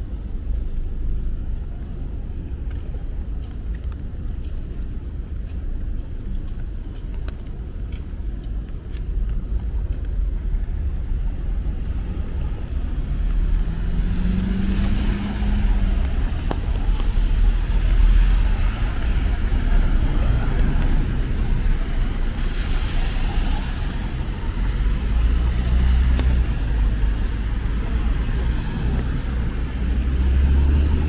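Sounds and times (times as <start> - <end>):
low rumble of cars: 0.0 - 31.0
vehicle engine hum: 0.0 - 31.0
tyre hiss on wet road: 11.5 - 31.0.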